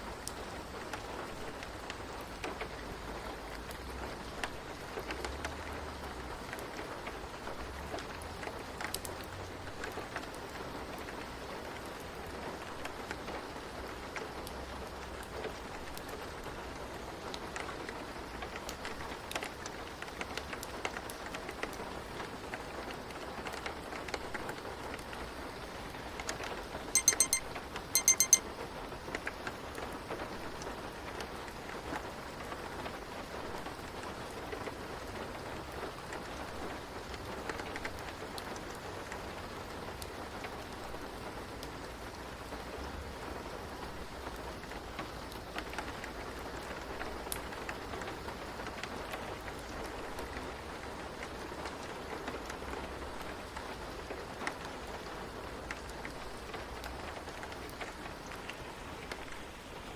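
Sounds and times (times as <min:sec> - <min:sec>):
steady rain: 0:00.0 - 0:59.9
digital timer alarm beeping: 0:27.0 - 0:28.4.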